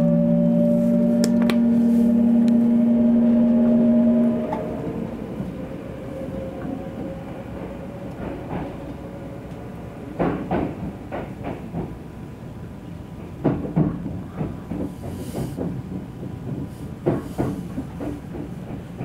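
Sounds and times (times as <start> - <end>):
loud steady hum: 0.0 - 5.4
train running noise with whine: 0.0 - 19.0
train wheels clacking: 6.4 - 12.0, 13.2 - 19.0.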